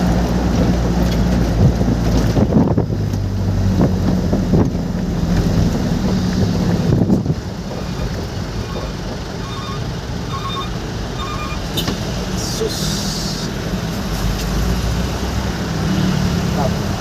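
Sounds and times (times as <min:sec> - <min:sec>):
engine hum: 0:00.0 - 0:17.0
rain and road noise: 0:00.0 - 0:17.0
short repeated beeps: 0:08.6 - 0:11.7.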